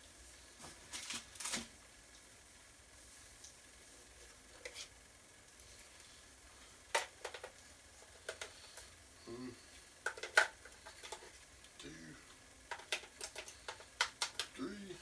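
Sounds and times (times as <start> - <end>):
small objects clicking and clattering: 6.9 - 8.9, 10.0 - 11.9, 12.7 - 14.6.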